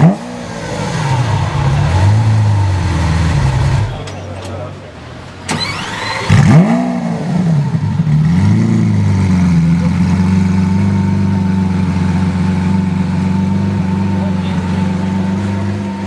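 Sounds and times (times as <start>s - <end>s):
car engine revving and idling: 0.0s - 16.0s
starter motor whir: 5.5s - 6.6s.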